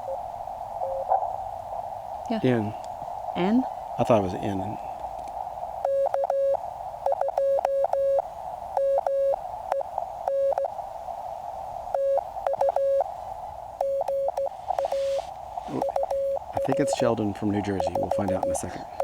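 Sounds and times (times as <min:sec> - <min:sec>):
radio hiss: 0:00.0 - 0:19.0
morse code tone: 0:05.8 - 0:08.2, 0:10.3 - 0:10.7, 0:12.0 - 0:13.1, 0:13.8 - 0:19.0.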